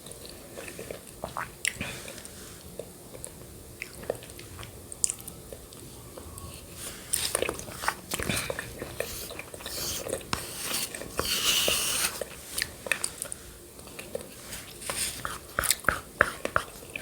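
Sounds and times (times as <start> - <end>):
wet chewing with lip clicks: 12.2 - 17.0.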